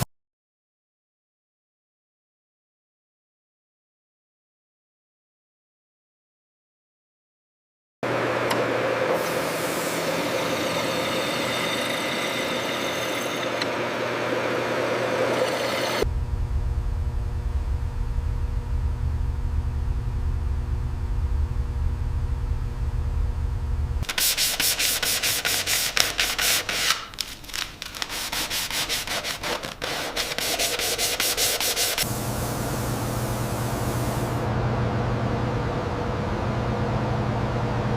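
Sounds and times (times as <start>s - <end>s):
low machine hum: 8.0s - 24.1s, 32.0s - 37.9s
rapid rubbing strokes: 24.0s - 32.1s
rubbing or sanding: 24.0s - 32.1s.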